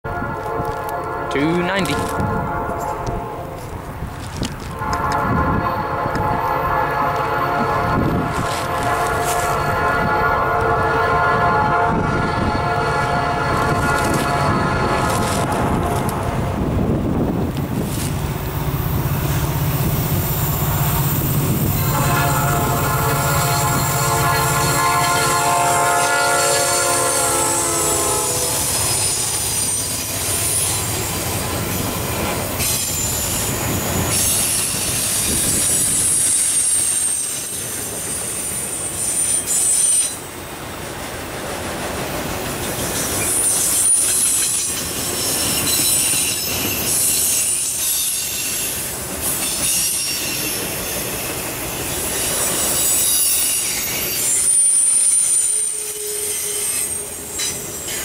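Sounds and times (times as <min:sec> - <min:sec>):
train horn: 0:00.0 - 0:03.8, 0:04.6 - 0:16.7, 0:20.4 - 0:30.6, 0:39.1 - 0:40.2, 0:52.0 - 0:58.0
diesel locomotives passing: 0:00.0 - 0:58.0
high-pitched wheel squeal: 0:32.6 - 0:40.2, 0:52.0 - 0:58.0.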